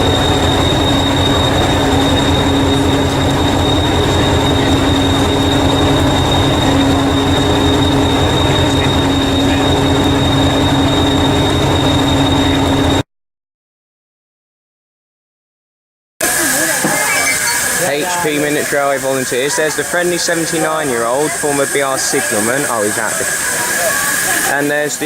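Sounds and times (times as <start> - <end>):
miniature locomotive whine and throb: 0.0 - 13.0, 16.2 - 25.0.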